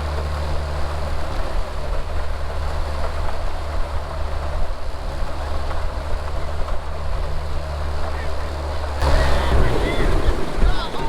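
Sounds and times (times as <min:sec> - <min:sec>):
outboard motor humming: 0:00.0 - 0:11.0
rushing water: 0:08.9 - 0:11.0
wind noise: 0:09.0 - 0:11.0.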